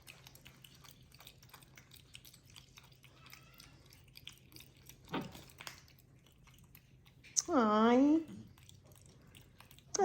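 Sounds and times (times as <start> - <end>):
monkeys chewing nuts: 0.0 - 10.0.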